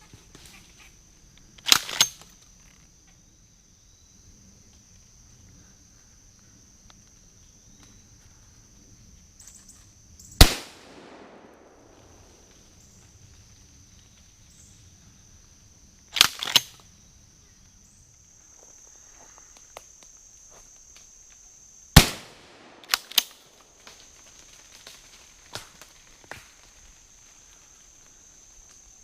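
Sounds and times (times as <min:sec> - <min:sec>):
high insect drone: 0:00.0 - 0:29.0
loud gunshot echoing: 0:10.4 - 0:12.3, 0:22.0 - 0:23.4.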